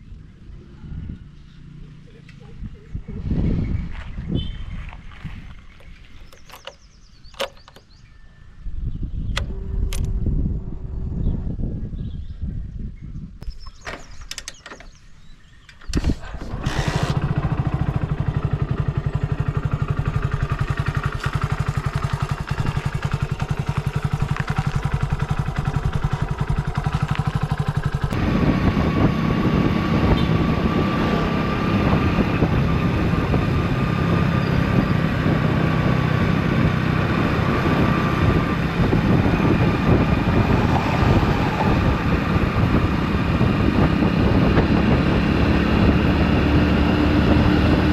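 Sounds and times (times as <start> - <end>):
motorcycle engine running: 16.0 - 47.9.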